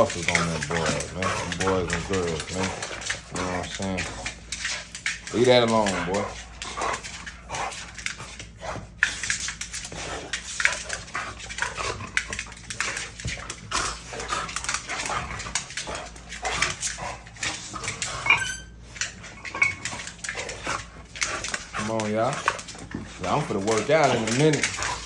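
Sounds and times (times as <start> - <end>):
dogs growling: 0.0 - 25.0
dogs scuffling: 0.0 - 25.0
dog whine: 18.1 - 18.8.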